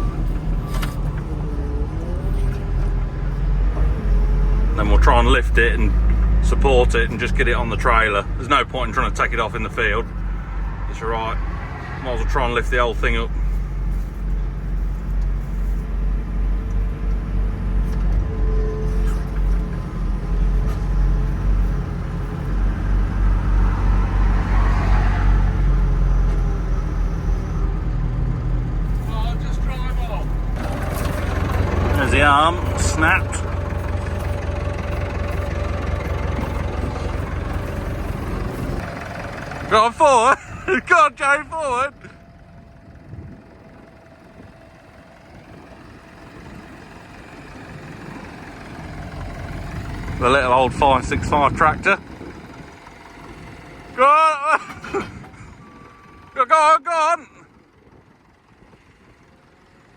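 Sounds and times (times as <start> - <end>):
diesel tractor engine running: 0.0 - 59.9.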